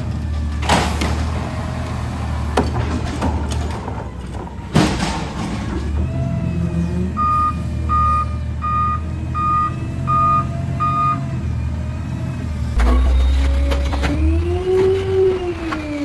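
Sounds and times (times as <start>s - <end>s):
truck reverse alarm beeps: 7.1s - 11.7s
low truck rumble: 8.3s - 16.0s
truck engine running: 11.3s - 16.0s.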